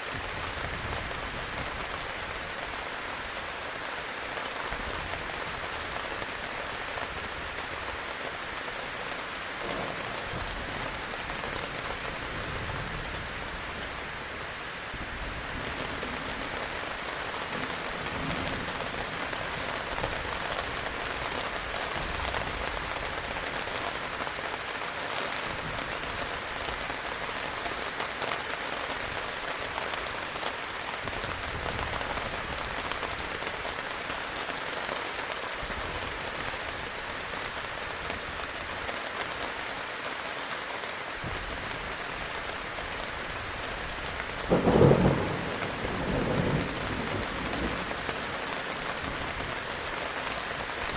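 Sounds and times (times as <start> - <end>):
heavy rain: 0.0 - 50.9
loud thunderclap: 9.6 - 11.0, 44.5 - 48.0
low thunder rumbling: 9.6 - 13.9, 15.2 - 20.2, 43.2 - 48.3.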